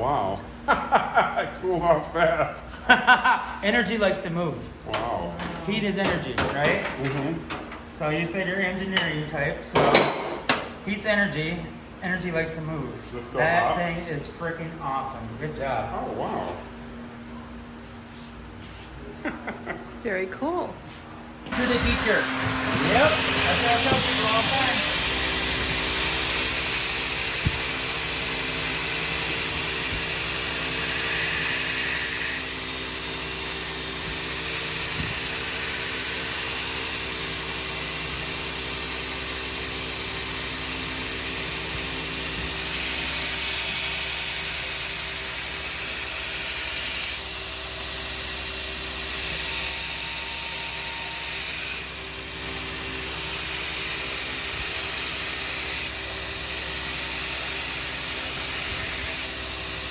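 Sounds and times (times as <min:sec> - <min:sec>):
machine hum: 0:21.4 - 0:32.0.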